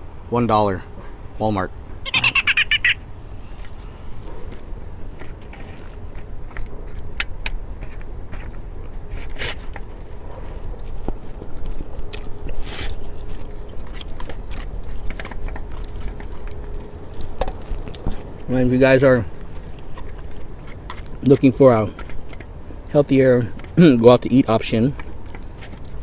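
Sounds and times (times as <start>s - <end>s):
crackly scraping strokes: 3.0s - 23.0s
person biting and chewing food: 3.0s - 23.8s, 24.9s - 26.0s.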